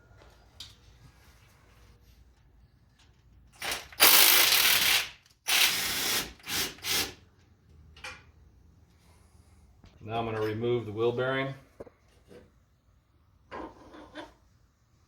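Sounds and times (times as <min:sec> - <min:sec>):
impact wrench spinning bolts: 0:03.5 - 0:05.7.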